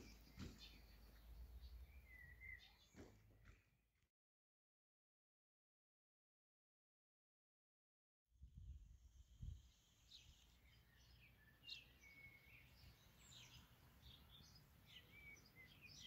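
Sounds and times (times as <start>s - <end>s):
small birds chirping: 0.0s - 3.9s, 9.1s - 16.0s.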